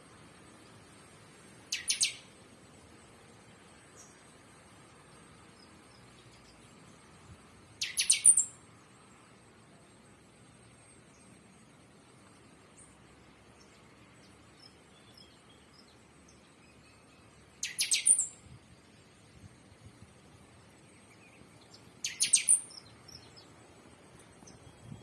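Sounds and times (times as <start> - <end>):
faint scattered chirps: 1.7 - 2.3, 7.8 - 8.6, 16.7 - 18.5, 21.0 - 23.5
high-pitched bird chirps: 1.7 - 2.3, 7.8 - 8.6, 17.6 - 18.4, 22.0 - 22.9.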